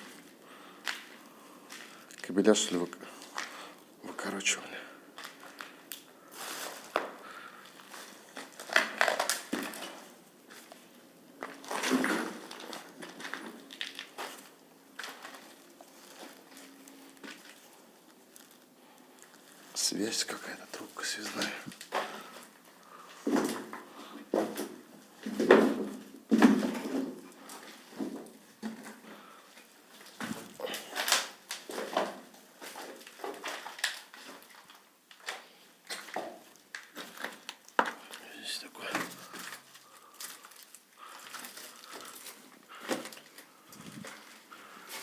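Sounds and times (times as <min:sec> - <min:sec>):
footsteps crunching over rubble: 0:00.0 - 0:45.0.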